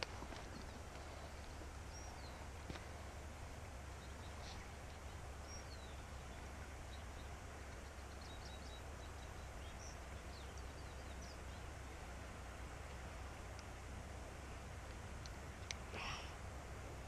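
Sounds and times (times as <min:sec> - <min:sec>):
faint bird chirps: 0:00.4 - 0:03.2, 0:03.9 - 0:11.8.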